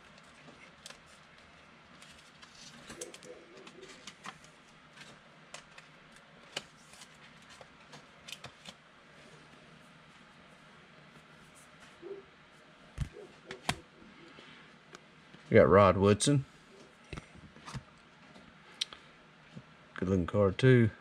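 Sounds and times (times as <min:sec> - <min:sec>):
trading cards rustling and clicking: 0:00.0 - 0:08.8.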